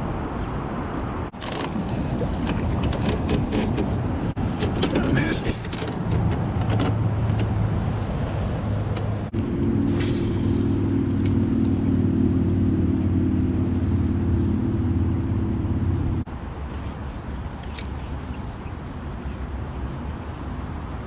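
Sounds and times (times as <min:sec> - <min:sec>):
engine drone: 0:01.3 - 0:18.0.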